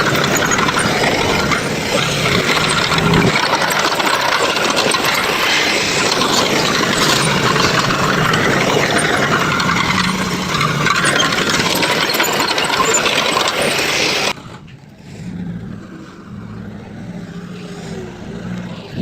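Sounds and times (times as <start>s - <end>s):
heavy machine engine clattering: 0.0s - 19.0s
steady engine hum: 0.0s - 19.0s.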